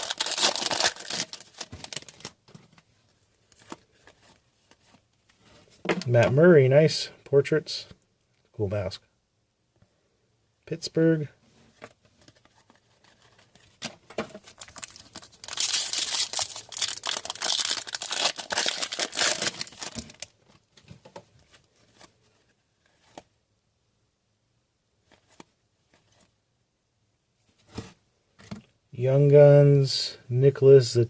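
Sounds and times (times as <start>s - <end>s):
wrapper tearing and crinkling: 0.0s - 2.4s, 14.5s - 20.3s.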